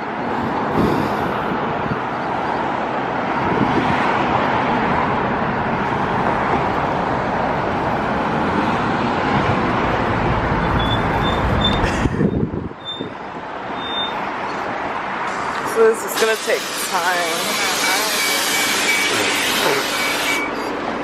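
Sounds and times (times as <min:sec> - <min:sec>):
passing vehicles rushing: 0:00.0 - 0:21.0
short high beeps: 0:13.8 - 0:14.2, 0:17.6 - 0:20.7.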